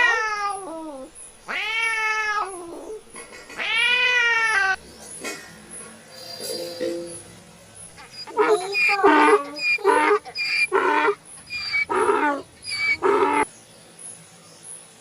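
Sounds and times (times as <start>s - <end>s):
cat meowing: 0.0s - 4.8s, 8.1s - 13.4s.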